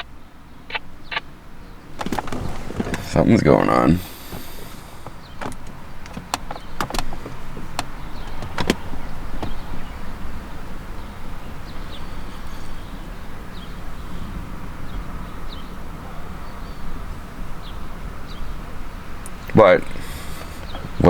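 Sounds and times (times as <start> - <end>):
sharp clicks and knocks: 1.9 - 9.7.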